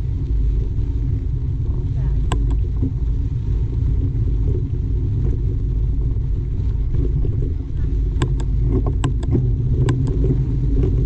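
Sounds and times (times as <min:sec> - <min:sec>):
bike tyres rolling on dirt: 0:00.0 - 0:11.0
wind on microphone: 0:00.0 - 0:11.0
sharp click: 0:02.3 - 0:02.6, 0:08.2 - 0:10.2.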